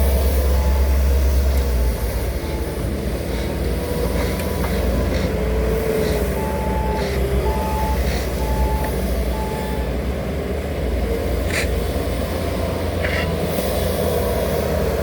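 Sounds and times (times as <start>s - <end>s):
reversing alarm beeping: 0.0s - 2.9s, 5.9s - 10.1s
diesel construction equipment rumbling: 0.0s - 15.0s.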